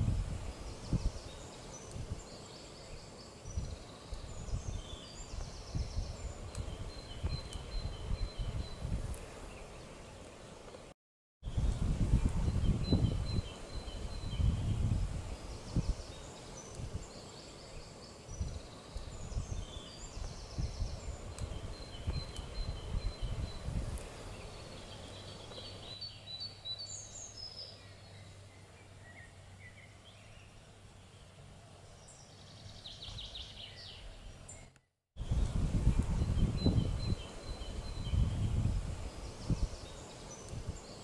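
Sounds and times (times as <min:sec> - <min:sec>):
wind buffeting microphone: 0:00.0 - 0:02.3, 0:03.5 - 0:09.5, 0:11.4 - 0:17.1, 0:18.3 - 0:25.6, 0:35.2 - 0:41.0
small birds chirping: 0:00.0 - 0:41.0.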